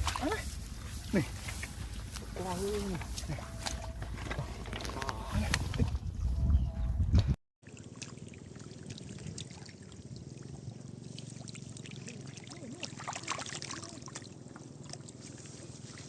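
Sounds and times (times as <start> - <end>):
muddy water sloshing and trickling: 0.0 - 6.5, 7.6 - 16.0
small splashes and drips: 7.6 - 16.0.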